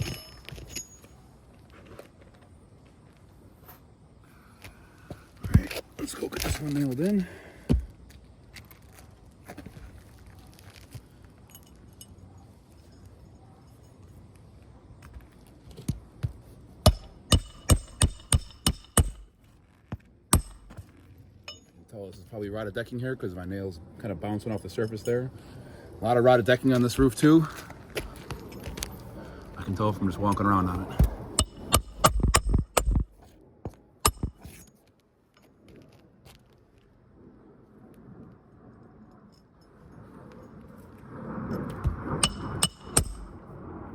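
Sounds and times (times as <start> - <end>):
hammer driving nails into shingles: 16.8 - 19.3, 20.3 - 20.8, 30.3 - 33.1, 34.0 - 34.6.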